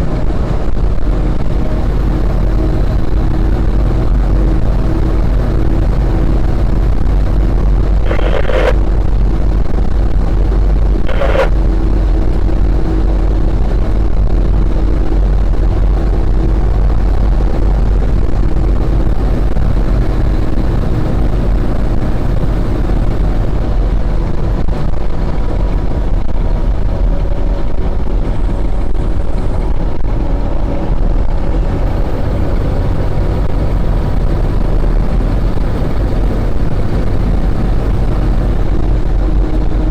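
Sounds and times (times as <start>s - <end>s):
fire engine rumble and road noise: 0.0s - 39.9s.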